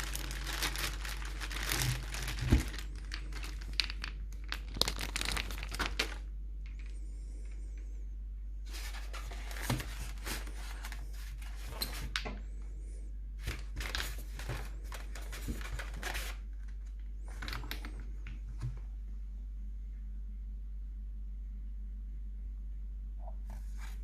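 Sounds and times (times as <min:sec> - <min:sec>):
plastic and paper crinkling: 0:00.0 - 0:07.6, 0:08.6 - 0:12.4, 0:13.4 - 0:18.7
steady low hum: 0:00.0 - 0:24.0.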